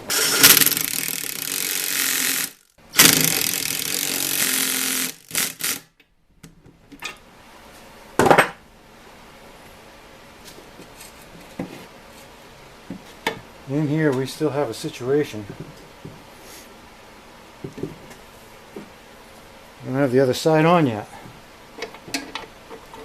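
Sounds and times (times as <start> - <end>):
power ratchet running: 0.0 - 5.9.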